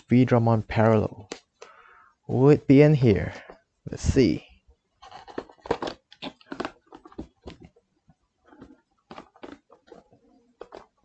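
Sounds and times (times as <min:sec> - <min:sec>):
foil wrapper crinkling and tearing: 0:05.0 - 0:07.6.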